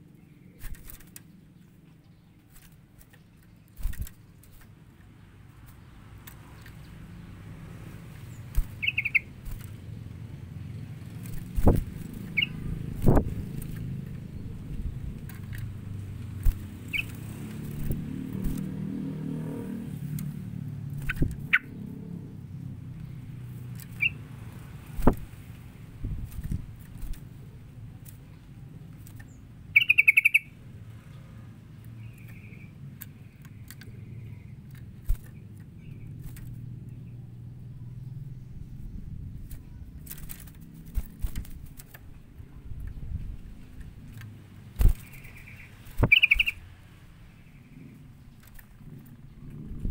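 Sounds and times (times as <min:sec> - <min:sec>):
steady low rumble: 0:06.9 - 0:18.8
high bird chirps: 0:08.2 - 0:10.1, 0:12.1 - 0:13.5, 0:16.4 - 0:18.7, 0:20.9 - 0:21.9, 0:23.8 - 0:24.3, 0:29.2 - 0:30.6, 0:31.9 - 0:34.6, 0:44.8 - 0:48.1
bird chattering call: 0:08.7 - 0:09.4, 0:12.2 - 0:12.8, 0:16.8 - 0:17.2, 0:21.0 - 0:21.8, 0:29.7 - 0:30.6, 0:45.0 - 0:46.7.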